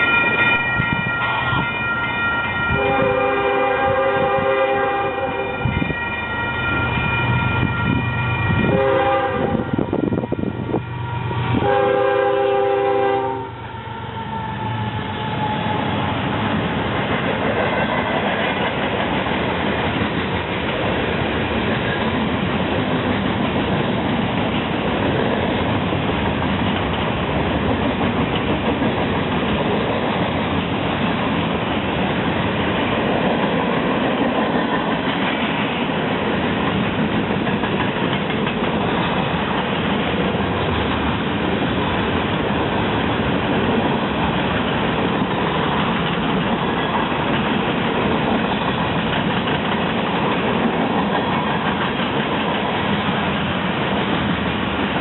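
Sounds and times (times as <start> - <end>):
train wheels clattering on rail: 14.5 - 55.0.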